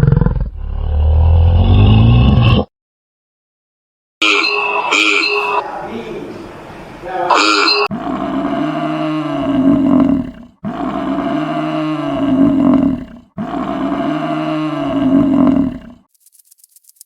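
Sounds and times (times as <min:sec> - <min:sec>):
big cat roaring: 0:00.0 - 0:02.7, 0:07.3 - 0:16.1.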